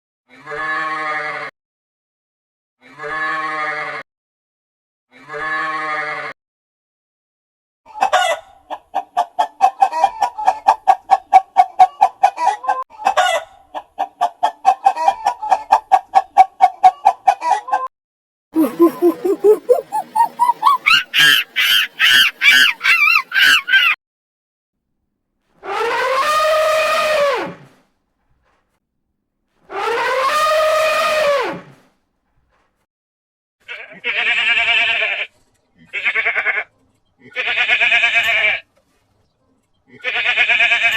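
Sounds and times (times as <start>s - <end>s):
chicken clucking: 8.0s - 12.3s, 18.6s - 24.0s
chicken squawks: 18.6s - 24.0s
long pitched animal call: 18.6s - 24.0s.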